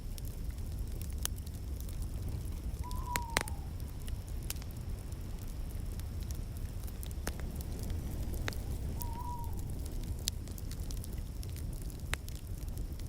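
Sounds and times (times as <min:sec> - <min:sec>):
wood fire crackling: 0:00.0 - 0:13.0
faint falling whistle: 0:02.8 - 0:03.8, 0:08.7 - 0:09.9.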